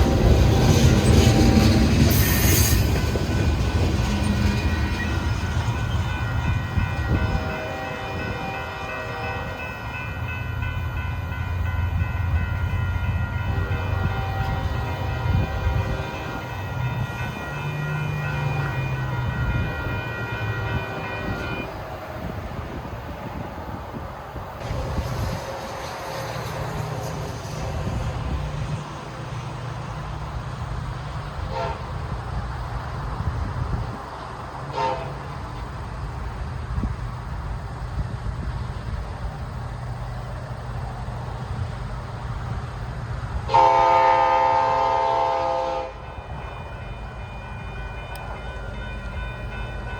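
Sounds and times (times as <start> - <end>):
freight train rumbling: 0.0 - 49.9
locomotive air horn toots: 4.2 - 10.0, 12.6 - 21.8, 31.4 - 32.0, 34.7 - 35.4, 43.5 - 49.2.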